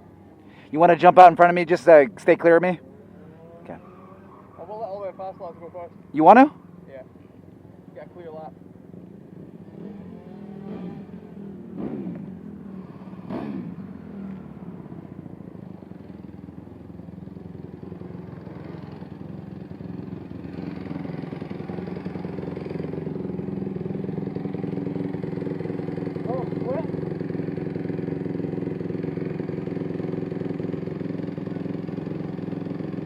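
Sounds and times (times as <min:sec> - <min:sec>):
small motorbike engines revving: 0:09.4 - 0:16.5, 0:17.3 - 0:33.0.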